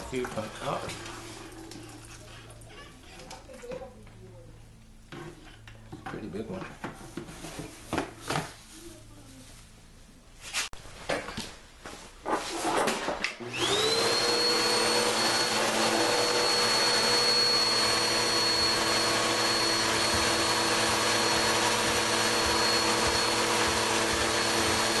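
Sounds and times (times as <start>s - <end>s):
electric motor whine: 13.4s - 25.0s.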